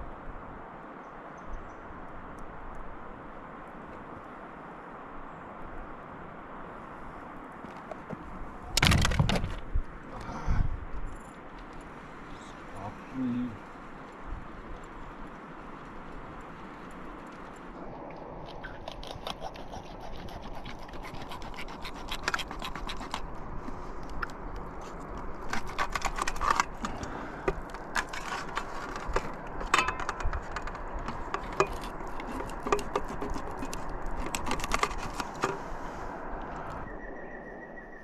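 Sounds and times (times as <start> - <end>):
scratching and scraping: 14.8 - 36.0.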